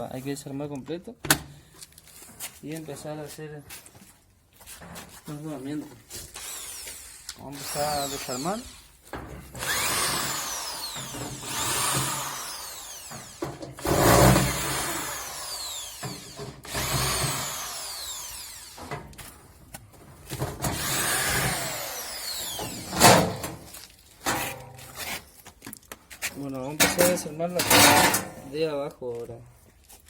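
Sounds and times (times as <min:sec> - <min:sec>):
cordless drill motor whine: 0:06.4 - 0:08.6, 0:09.6 - 0:18.9, 0:20.8 - 0:22.9.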